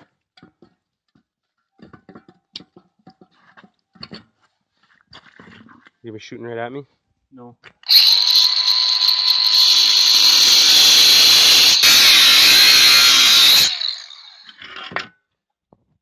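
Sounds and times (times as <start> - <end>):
electric grinder cutting metal: 7.9 - 14.6.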